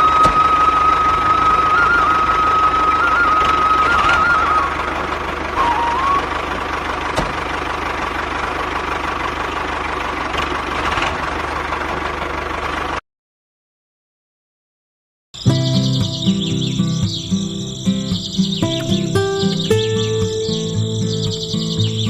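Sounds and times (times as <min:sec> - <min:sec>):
machine whine: 0:00.0 - 0:07.5.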